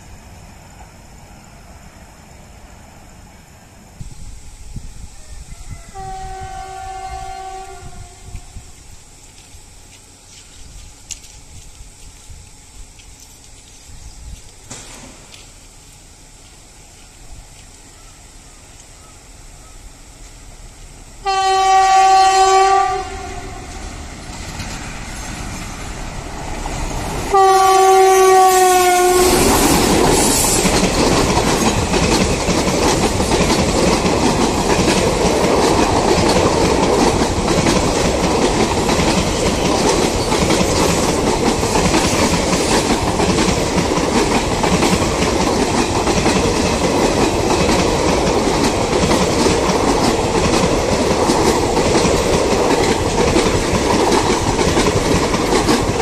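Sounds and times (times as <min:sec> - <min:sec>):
train coaches rumbling past: 0:00.0 - 0:56.0
locomotive air horn blasts: 0:05.2 - 0:08.6, 0:21.2 - 0:23.8, 0:27.3 - 0:29.5
wheels clacking over rail joints: 0:22.6 - 0:56.0.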